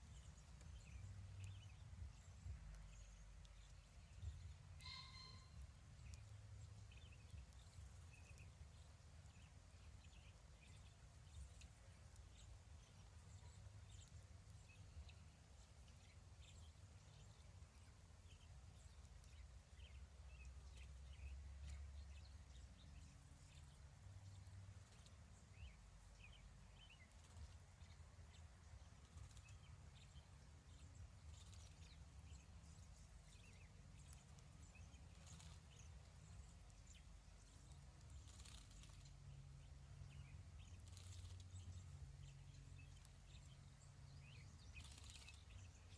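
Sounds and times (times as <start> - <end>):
faint low rumble: 0.0 - 45.9
faint short chirps and ticks: 0.1 - 15.2, 29.0 - 30.2, 31.2 - 39.2, 40.0 - 45.9.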